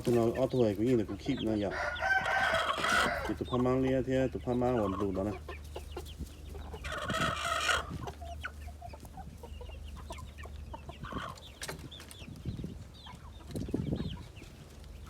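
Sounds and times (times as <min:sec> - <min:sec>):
chickens clucking: 0:00.0 - 0:15.0
loud harsh chicken call: 0:01.5 - 0:03.5, 0:06.7 - 0:08.1.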